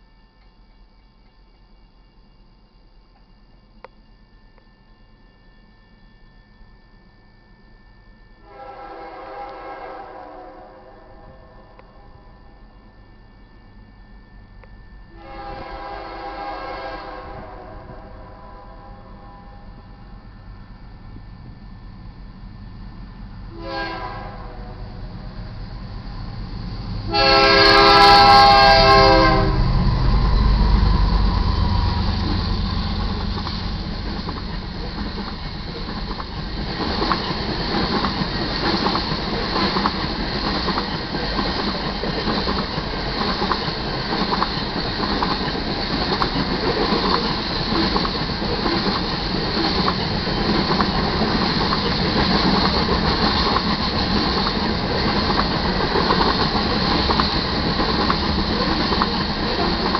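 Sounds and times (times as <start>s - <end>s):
locomotive horn blast: 8.4s - 12.3s, 15.2s - 19.9s, 23.5s - 25.0s, 27.1s - 29.7s
locomotives rumbling: 24.7s - 59.9s
clickety-clack of train wheels: 25.8s - 59.9s.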